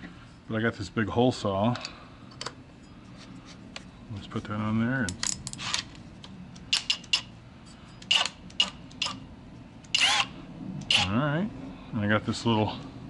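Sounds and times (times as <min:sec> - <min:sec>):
drill whirring: 0:08.1 - 0:09.2, 0:09.9 - 0:10.3.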